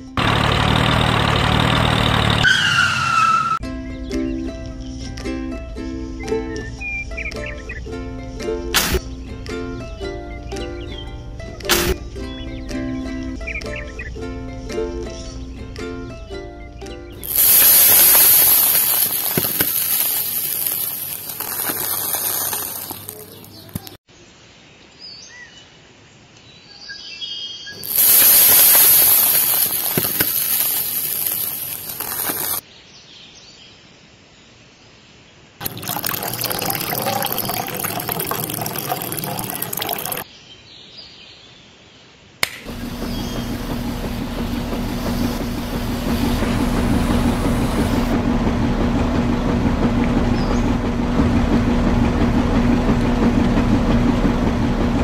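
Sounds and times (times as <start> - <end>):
water pouring into tin drum: 17.2 - 23.5, 27.8 - 32.6, 35.6 - 40.2
small motor humming: 42.7 - 55.0.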